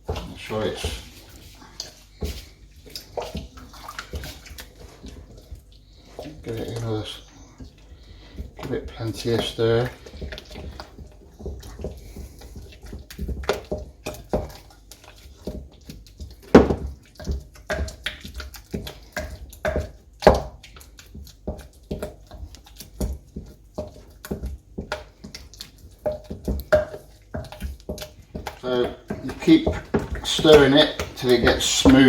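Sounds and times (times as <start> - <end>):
spoon stirring porridge in bowl: 0.0 - 32.0
spoon knocking and scraping bowl: 8.2 - 32.0.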